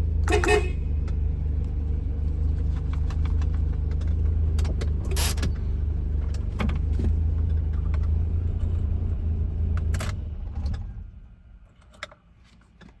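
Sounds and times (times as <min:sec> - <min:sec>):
keys jangling: 0:05.1 - 0:05.4.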